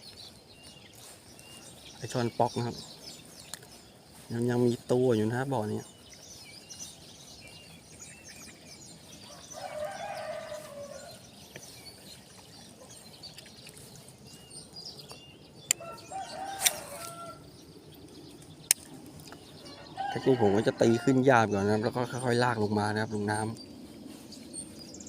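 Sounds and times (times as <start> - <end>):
small birds chirping: 0.0 - 25.0
rooster crowing: 9.3 - 11.2, 15.8 - 17.5, 19.6 - 21.4.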